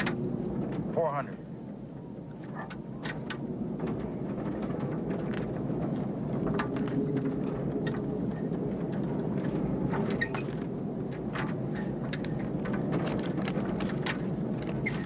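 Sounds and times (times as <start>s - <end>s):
wind and rain rushing: 0.0s - 15.0s.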